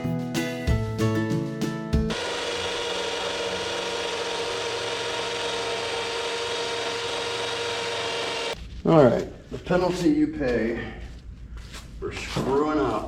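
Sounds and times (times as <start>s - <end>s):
electric power tool sanding: 2.1s - 8.6s.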